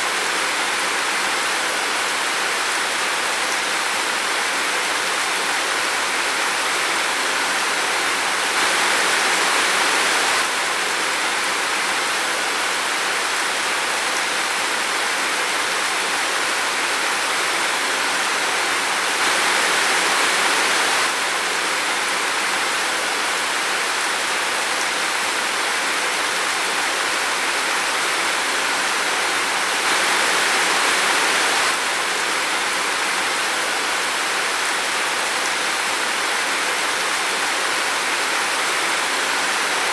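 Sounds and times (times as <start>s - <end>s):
steady rain in a forest: 0.0s - 39.9s.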